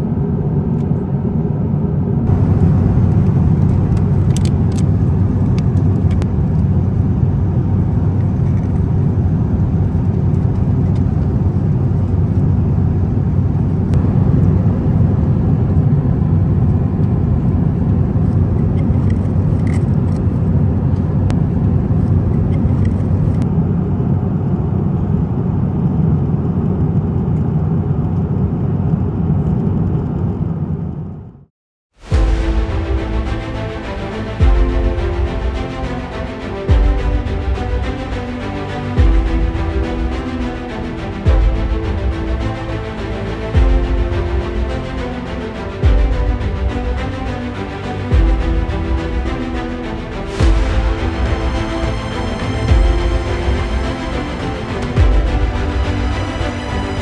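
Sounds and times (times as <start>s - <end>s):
airplane cabin engine rumble: 0.0s - 31.0s, 32.0s - 57.0s.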